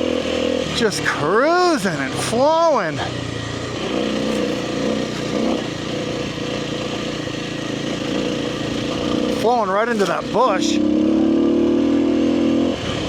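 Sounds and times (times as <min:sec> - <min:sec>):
dirt bike engine cruising: 0:00.0 - 0:13.0.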